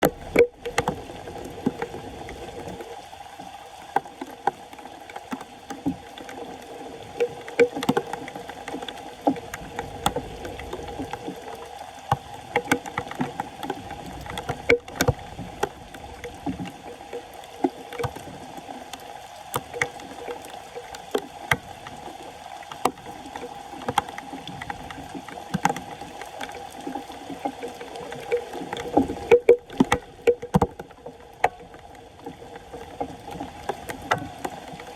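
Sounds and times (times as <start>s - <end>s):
floodwater sloshing and splashing: 0.0s - 34.9s
small knocks and clicks: 7.2s - 11.3s, 12.0s - 16.8s, 17.5s - 34.9s.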